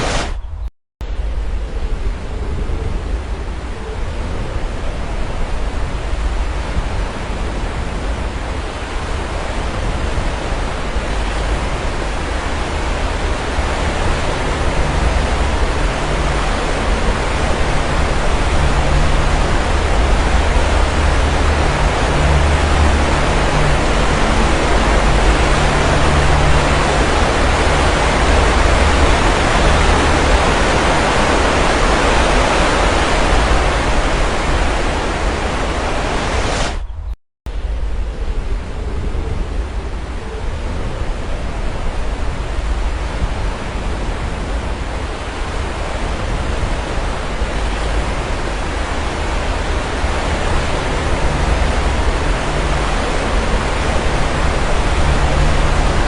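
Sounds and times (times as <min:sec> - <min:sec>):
waves breaking ashore: 0:00.0 - 0:00.4, 0:01.6 - 0:36.8, 0:37.9 - 0:56.0
deep low rumble: 0:11.2 - 0:56.0.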